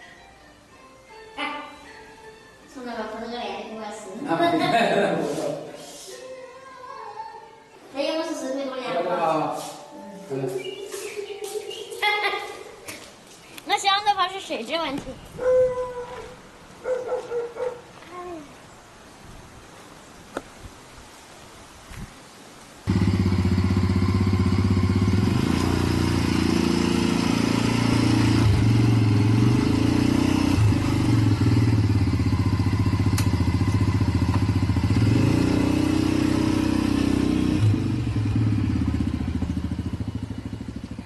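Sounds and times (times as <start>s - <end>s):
motor tricycle engine running: 22.9s - 41.0s.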